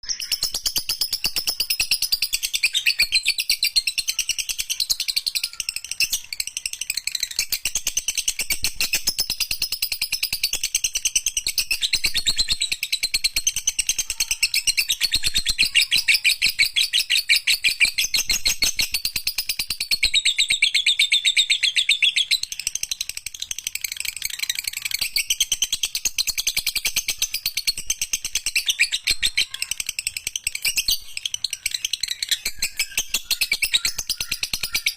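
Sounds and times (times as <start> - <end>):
lovebird trilling: 27.1 - 34.9.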